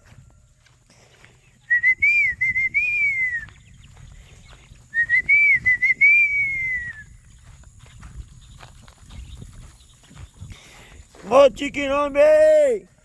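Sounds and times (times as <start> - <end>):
person whistling: 1.7 - 3.6, 4.9 - 7.1.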